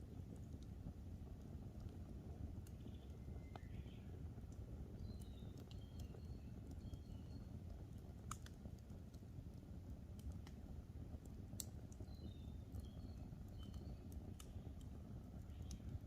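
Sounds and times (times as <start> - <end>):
campfire crackling and popping: 0.0 - 16.0
faint bird chirps: 2.7 - 4.2, 4.9 - 7.7, 12.0 - 14.8, 15.4 - 16.0.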